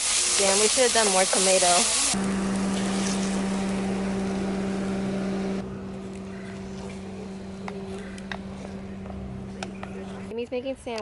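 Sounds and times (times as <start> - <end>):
low mechanical hum: 1.8 - 10.4.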